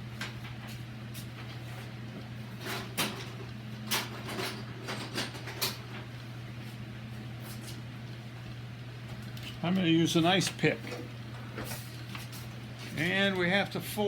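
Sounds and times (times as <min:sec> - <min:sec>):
steady low hum: 0:05.9 - 0:14.0.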